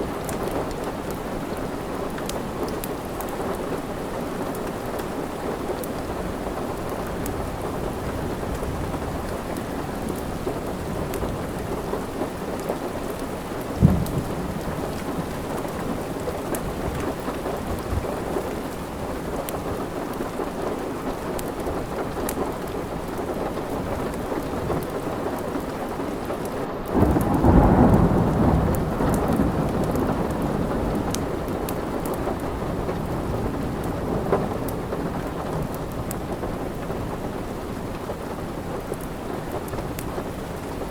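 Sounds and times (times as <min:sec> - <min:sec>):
steady rain: 0:00.0 - 0:40.9
wood fire crackling: 0:00.0 - 0:40.9
thunder rolling: 0:07.0 - 0:18.5, 0:27.0 - 0:37.3.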